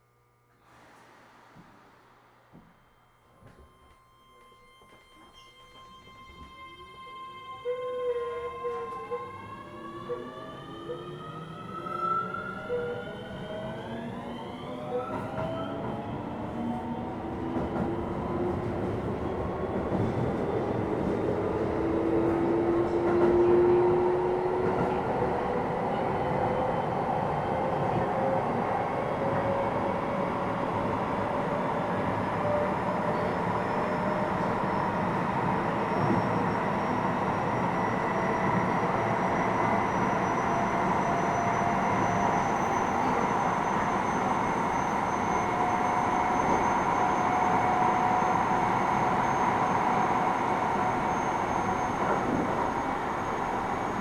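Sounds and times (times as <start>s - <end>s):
train wheels rumbling on rail: 15.1s - 31.3s, 32.4s - 54.0s.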